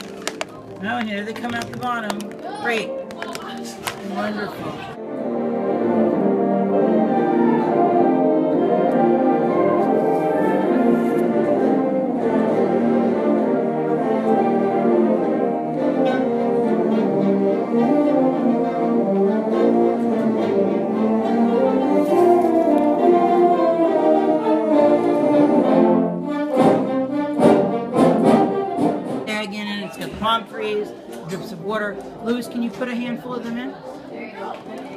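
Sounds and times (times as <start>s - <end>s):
orchestral music with horns: 1.9s - 29.8s.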